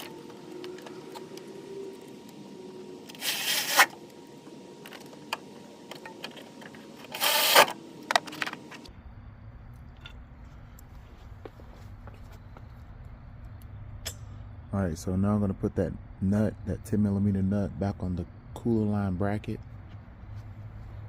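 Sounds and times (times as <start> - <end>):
background hum: 0.0 - 21.0
tools scraping parts: 3.1 - 4.0, 4.8 - 8.8.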